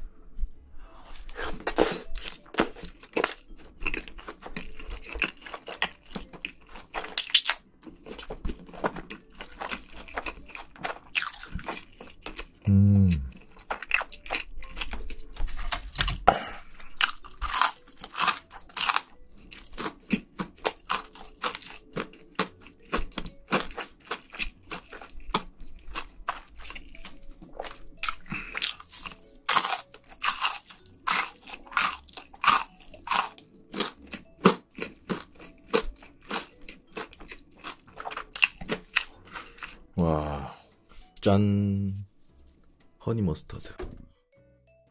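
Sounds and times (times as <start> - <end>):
crunchy chewing: 1.1 - 40.0
person humming mm: 12.6 - 13.3.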